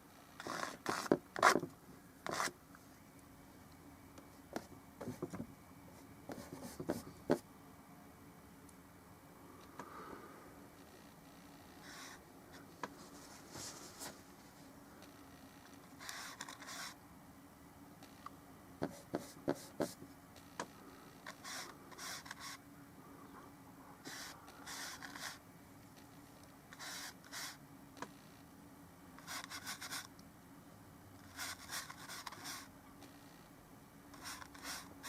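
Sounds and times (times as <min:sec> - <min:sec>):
steady low hum: 0:00.0 - 0:35.0
paintbrush scrubbing canvas: 0:24.1 - 0:25.4, 0:34.2 - 0:34.9.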